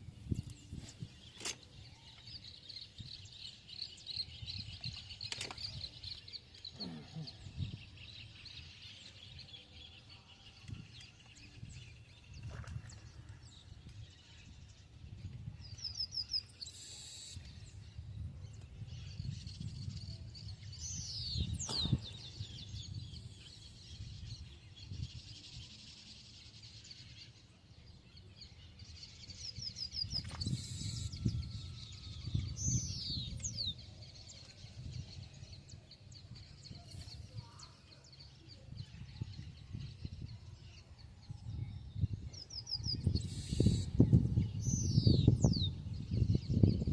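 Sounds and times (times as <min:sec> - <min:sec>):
birds singing: 0:00.0 - 0:46.9.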